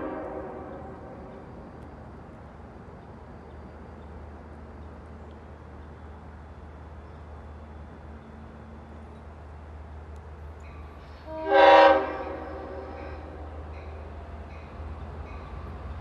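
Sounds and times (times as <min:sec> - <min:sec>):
train horn blasts: 0:00.0 - 0:01.5, 0:11.2 - 0:13.7
train rumbling: 0:00.0 - 0:16.0.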